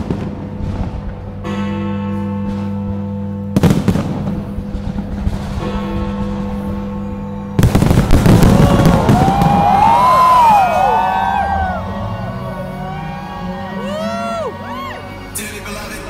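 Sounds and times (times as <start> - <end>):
fireworks bangs and crackling: 0.0 - 1.4, 3.6 - 6.8, 7.6 - 10.9
music: 0.0 - 16.0.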